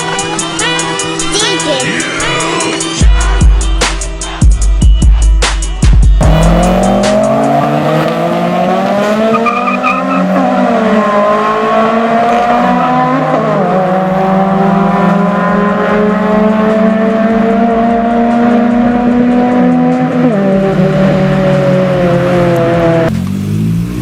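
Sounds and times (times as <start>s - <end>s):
car engine accelerating: 6.2s - 24.0s.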